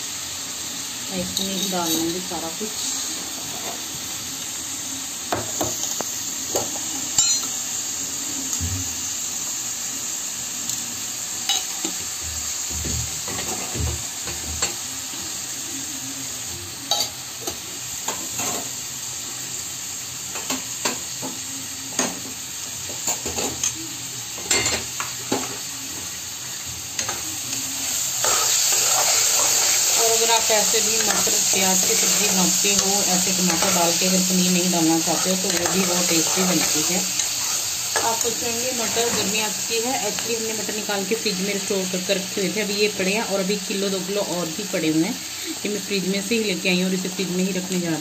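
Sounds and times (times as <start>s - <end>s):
onions frying in a pan: 0.0s - 48.0s
utensil scraping cookware: 28.2s - 34.1s, 35.0s - 38.2s.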